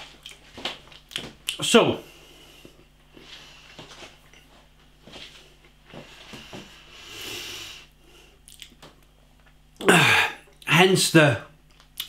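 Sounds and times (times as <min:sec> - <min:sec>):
person chewing crunchy food: 0:00.0 - 0:01.6, 0:08.4 - 0:08.8, 0:11.6 - 0:12.0
deep breath: 0:05.9 - 0:08.4.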